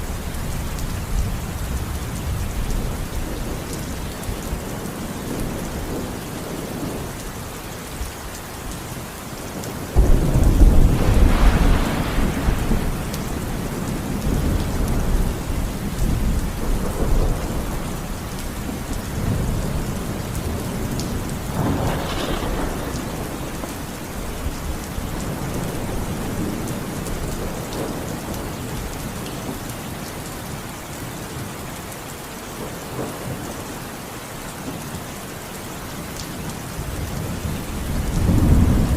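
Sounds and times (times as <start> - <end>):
steady rain falling: 0.0 - 38.9
thunder rumbling: 9.6 - 29.6, 36.7 - 38.9.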